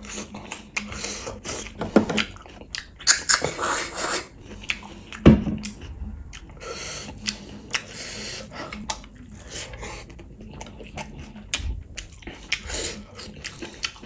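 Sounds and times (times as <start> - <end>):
wet chewing: 0.0 - 14.0
lip smacks: 0.4 - 9.2, 10.0 - 14.0
heavy low thud: 5.2 - 5.7.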